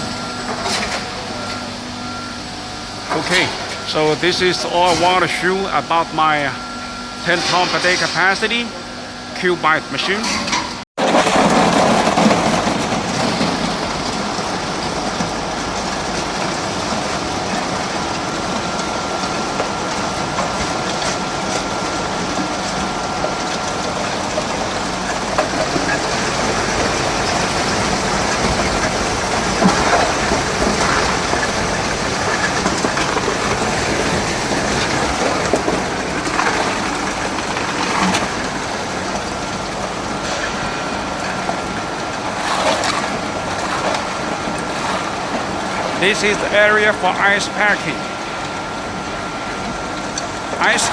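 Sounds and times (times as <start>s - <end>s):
machinery humming: 0.0s - 50.9s
faint whine: 3.0s - 10.3s.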